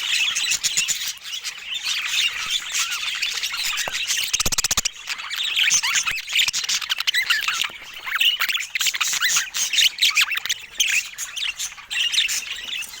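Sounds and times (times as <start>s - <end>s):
budgerigars chattering: 0.0s - 13.0s.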